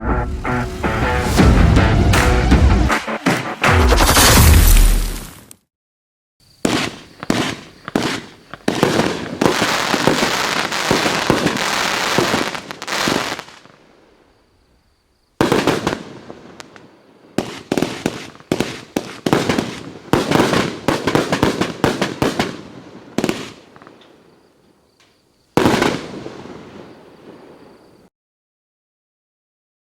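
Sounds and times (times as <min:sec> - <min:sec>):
fireworks shots and aerial bursts: 0:00.0 - 0:05.5, 0:06.5 - 0:13.8, 0:15.4 - 0:23.9.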